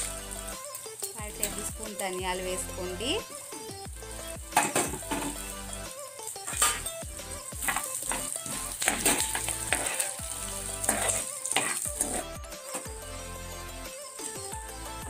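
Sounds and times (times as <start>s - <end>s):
background music: 0.0s - 15.0s
oil sizzling in a pan: 0.0s - 15.0s
spatula scraping a pan: 6.4s - 7.0s, 7.6s - 12.9s.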